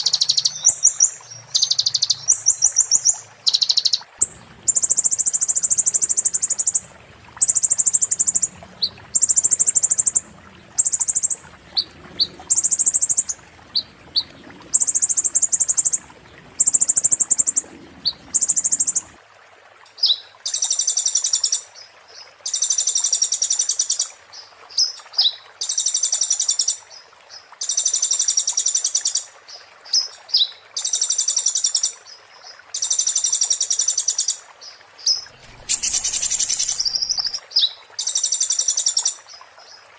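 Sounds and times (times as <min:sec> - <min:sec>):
bird high rapid trills: 0:35.1 - 0:37.4
bird sharp chips: 0:35.3 - 0:37.4.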